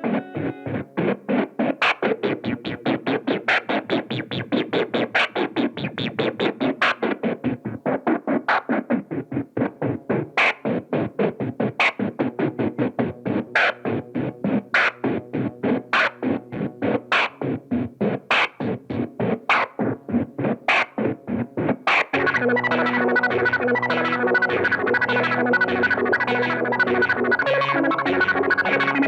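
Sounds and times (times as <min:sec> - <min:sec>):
pulsing staccato synth notes: 0:22.0 - 0:29.0.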